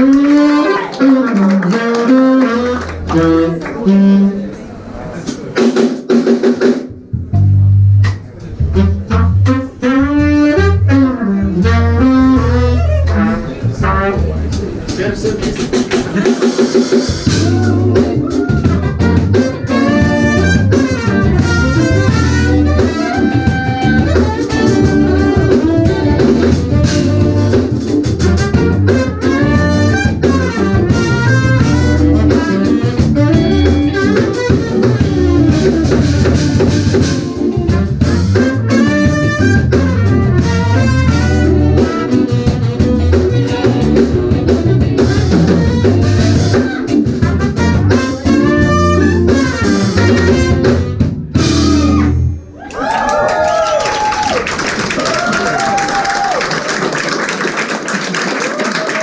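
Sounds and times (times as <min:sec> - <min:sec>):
drum kit: 0:00.0 - 0:04.4, 0:05.1 - 0:56.4
trumpet: 0:00.0 - 0:04.5, 0:08.7 - 0:52.5
electric bass: 0:00.0 - 0:05.4, 0:06.9 - 0:52.6
saxophone: 0:00.0 - 0:05.4, 0:07.3 - 0:52.4
keyboards: 0:06.8 - 0:52.5
electric guitar: 0:07.2 - 0:52.5.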